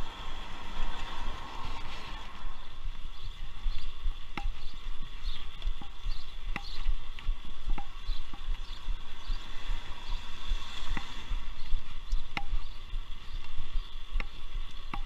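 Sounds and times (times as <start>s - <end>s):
bicycle tyres rumbling on paving: 0.0s - 15.0s
bike clicks and knocks: 4.2s - 4.8s, 5.6s - 8.8s, 12.0s - 12.7s, 14.1s - 15.0s.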